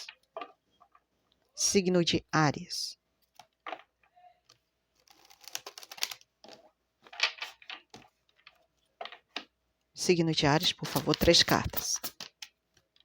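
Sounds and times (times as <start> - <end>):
paper cards being shuffled: 4.5 - 9.2, 10.5 - 13.0.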